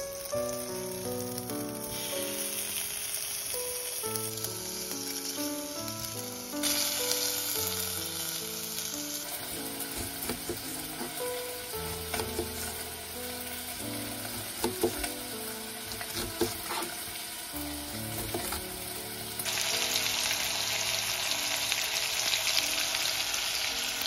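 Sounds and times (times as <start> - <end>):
bacon and onion sizzling: 0.0 - 24.0
soft background music: 0.0 - 24.0
knife chopping on cutting board: 9.9 - 11.2, 14.6 - 15.1, 16.0 - 16.9.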